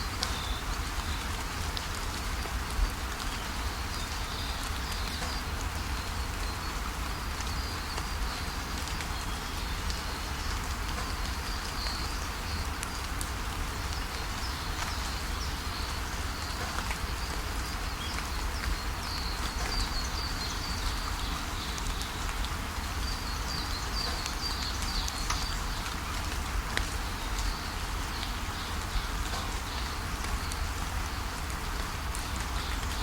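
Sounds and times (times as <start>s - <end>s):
steady rainfall: 0.0s - 33.0s
rain drop taps: 4.6s - 5.8s, 9.8s - 13.3s, 13.9s - 17.4s, 18.0s - 22.5s, 23.7s - 30.7s.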